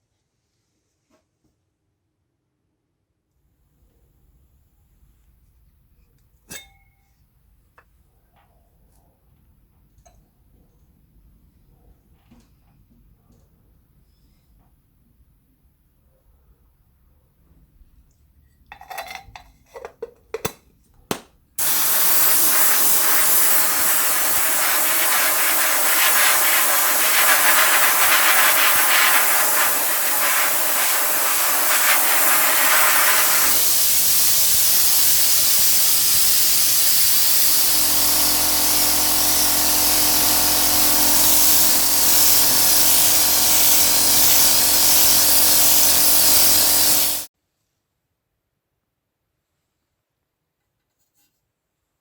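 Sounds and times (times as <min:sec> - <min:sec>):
hiss of paint spray: 0:21.6 - 0:47.3
spray can clicks: 0:21.6 - 0:47.3
low motor hum: 0:35.8 - 0:47.3.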